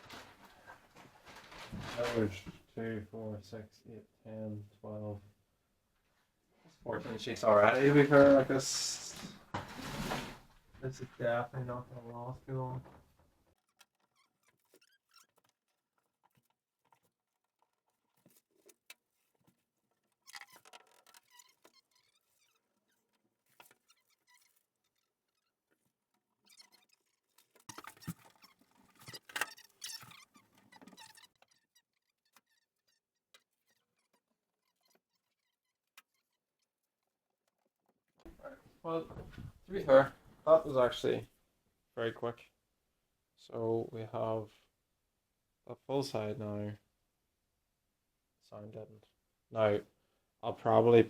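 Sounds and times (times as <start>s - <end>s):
sound-deadening sheets crinkling: 0.0s - 2.6s.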